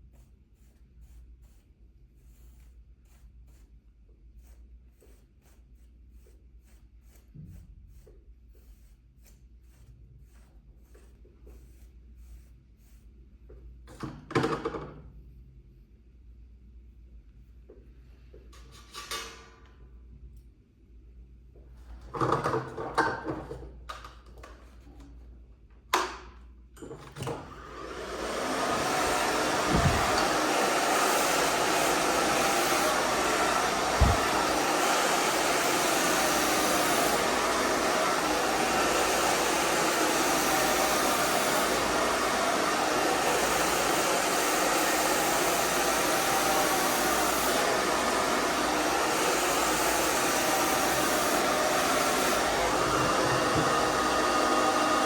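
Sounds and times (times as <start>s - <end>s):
hairdryer blowing: 27.1s - 55.0s
low thumps: 29.5s - 30.4s, 33.8s - 34.6s.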